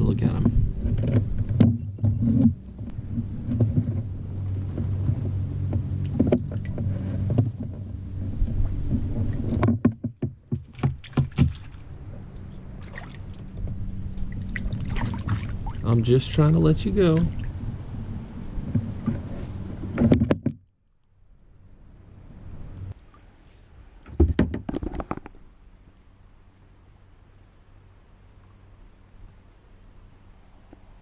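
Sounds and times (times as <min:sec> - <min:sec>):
steady low hum: 0:00.0 - 0:24.1
knocks on kayak: 0:08.5 - 0:11.7, 0:24.1 - 0:25.2.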